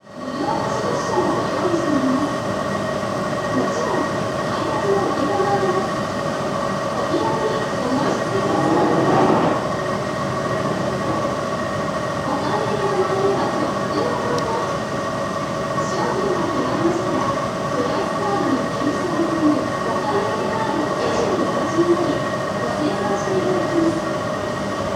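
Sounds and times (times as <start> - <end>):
air conditioner fan rushing: 2.4 - 15.8.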